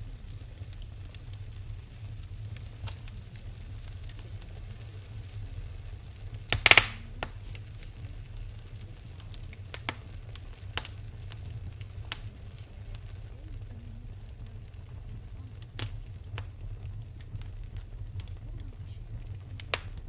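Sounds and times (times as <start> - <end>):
low steady rumble: 0.0 - 20.0
wood fire crackling: 0.0 - 20.0.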